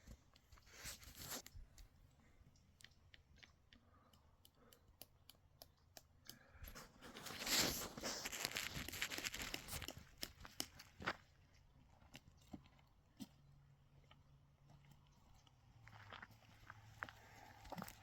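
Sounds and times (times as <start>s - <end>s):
crunching and tearing: 6.7s - 11.2s.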